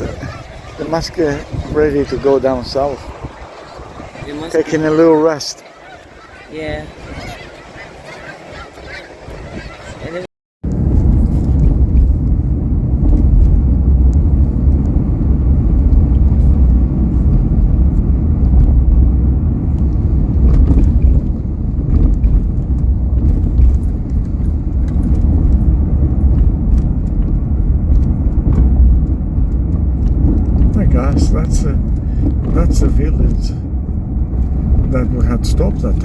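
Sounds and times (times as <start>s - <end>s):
car engine and tyres rumbling: 0.0s - 9.0s, 10.6s - 36.0s.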